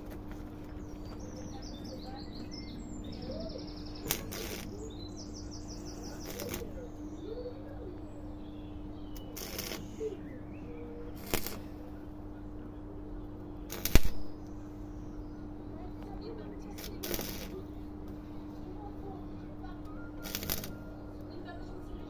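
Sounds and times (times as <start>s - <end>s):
low hum: 0.0s - 22.0s
small bird trilling: 0.8s - 11.8s, 19.9s - 21.4s
sharp click: 4.0s - 4.7s, 13.7s - 14.2s, 20.2s - 20.8s
short hissing bursts: 4.0s - 6.8s, 9.3s - 10.2s, 11.1s - 11.8s, 13.7s - 14.2s, 16.7s - 17.6s.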